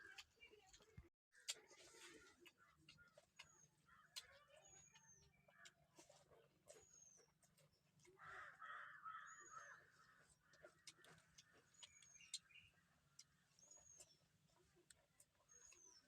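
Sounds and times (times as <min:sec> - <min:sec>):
small bird chirping: 0:00.0 - 0:16.0
crow cawing: 0:08.2 - 0:10.2.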